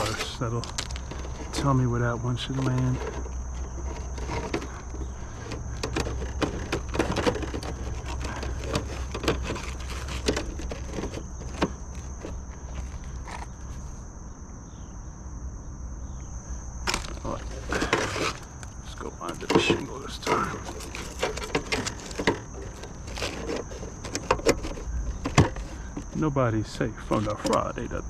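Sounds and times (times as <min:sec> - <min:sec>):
high insect drone: 0:00.0 - 0:28.0
clicks and knocks of roofing parts: 0:02.5 - 0:13.5, 0:16.9 - 0:26.3.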